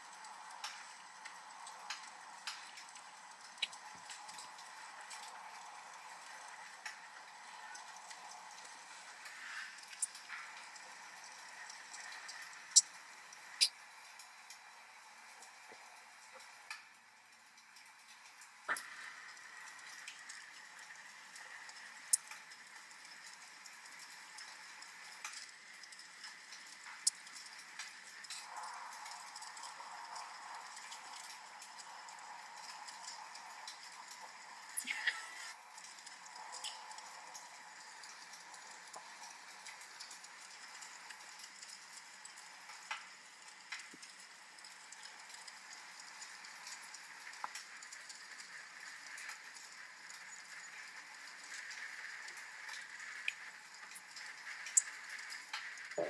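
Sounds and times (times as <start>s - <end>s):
rain hiss: 0.0s - 56.0s
wood fire crackling: 0.0s - 56.0s.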